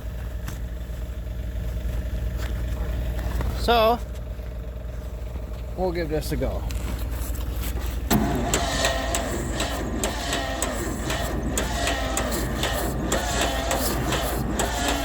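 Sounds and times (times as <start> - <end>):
starter whine: 1.6 - 15.0
engine cranking: 6.6 - 15.0.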